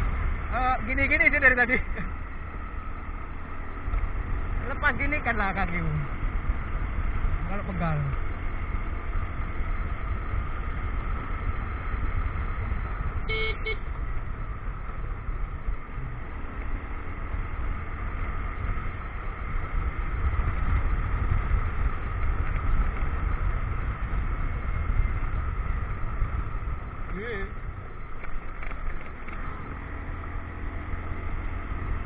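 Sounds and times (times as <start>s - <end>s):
motorcycle engine running: 0.0s - 32.0s
wind rumble on microphone: 3.8s - 30.6s
short horn beep: 13.3s - 13.9s.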